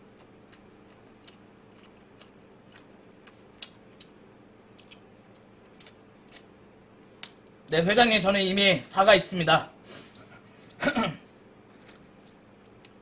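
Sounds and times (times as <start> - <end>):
crunching fried chicken: 0.0 - 6.5
faint steady hum: 0.0 - 13.0.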